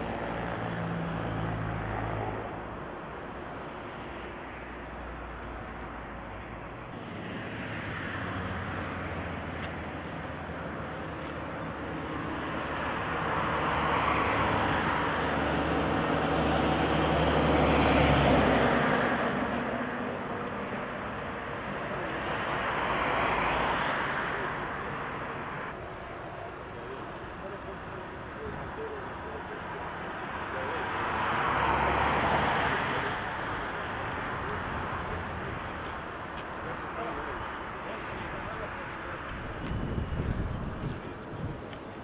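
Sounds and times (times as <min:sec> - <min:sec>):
heavy vehicles passing by: 0:00.0 - 0:42.0.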